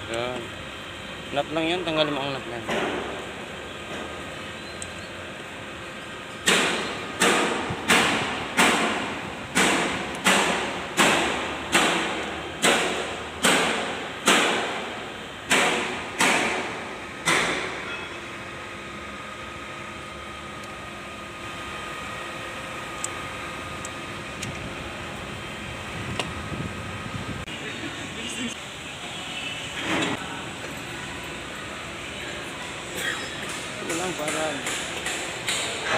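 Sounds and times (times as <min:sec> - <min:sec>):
hammer striking metal: 0:06.4 - 0:18.2, 0:33.0 - 0:35.9.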